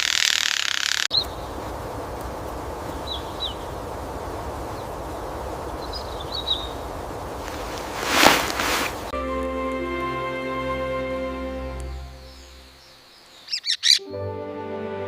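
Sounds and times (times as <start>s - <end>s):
steady low hiss: 1.1s - 13.9s
faint high bird chirps: 11.8s - 14.1s.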